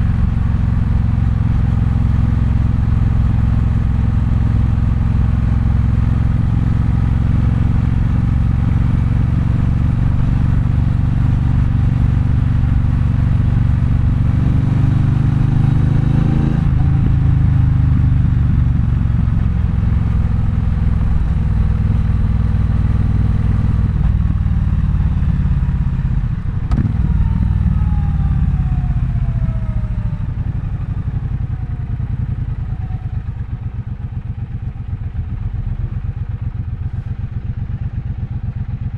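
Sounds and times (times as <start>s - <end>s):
motorcycle engine revving: 6.2s - 29.1s.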